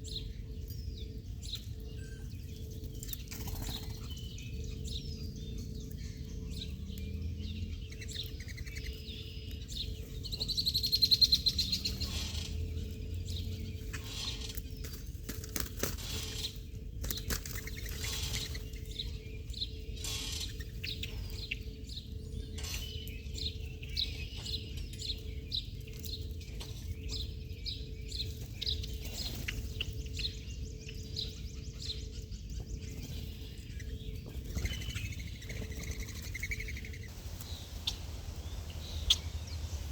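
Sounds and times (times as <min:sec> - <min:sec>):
faint steady hum: 0:00.0 - 0:39.9
small birds chirping: 0:00.0 - 0:39.9.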